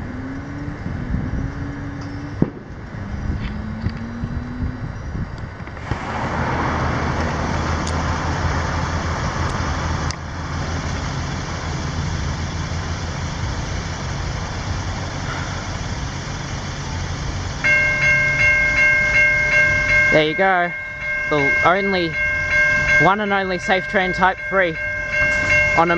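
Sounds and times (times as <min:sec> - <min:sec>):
road traffic passing: 0:00.0 - 0:25.9
level crossing warning bells: 0:15.2 - 0:25.9.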